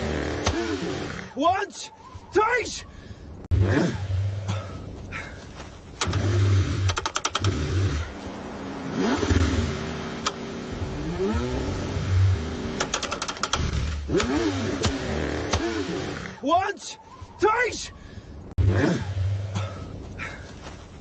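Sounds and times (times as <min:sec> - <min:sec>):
car engine cranking: 0:05.9 - 0:08.2, 0:08.9 - 0:16.4
rapid clicking: 0:06.8 - 0:07.6, 0:12.8 - 0:14.4.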